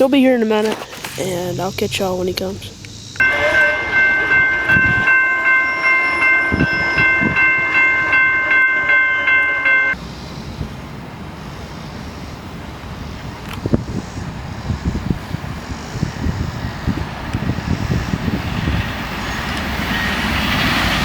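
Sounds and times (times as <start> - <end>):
train running past: 1.2 - 13.3, 15.3 - 21.0
locomotive horn: 3.2 - 10.0.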